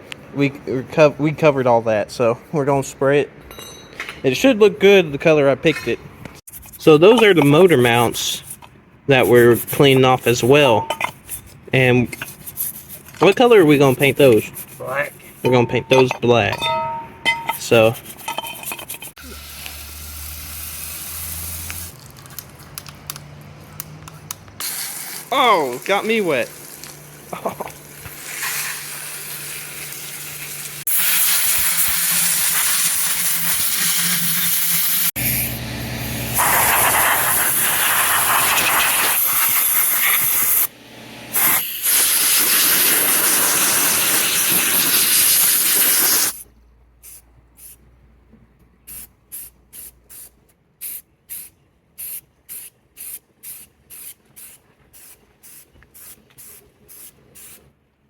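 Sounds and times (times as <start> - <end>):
water spray jet hissing: 36.4 - 40.4.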